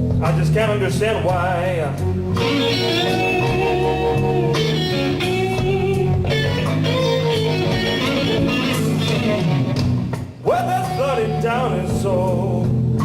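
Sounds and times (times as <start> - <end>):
band accompaniment: 0.0 - 13.0
electric guitar playing blues: 0.0 - 13.0
person singing: 2.4 - 9.8, 10.4 - 12.9.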